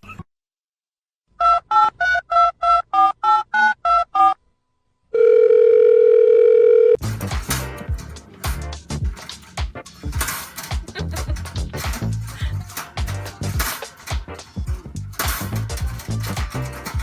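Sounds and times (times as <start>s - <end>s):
steady telephone tone: 5.1s - 7.0s.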